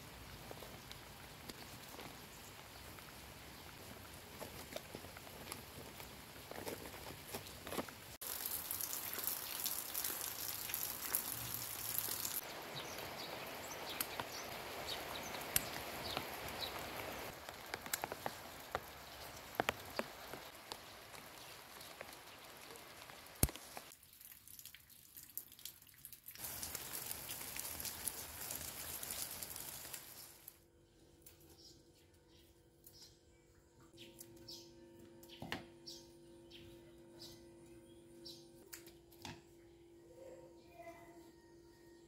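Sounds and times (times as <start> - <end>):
rain pattering: 0.0 - 30.6
sharp drips: 8.2 - 30.2.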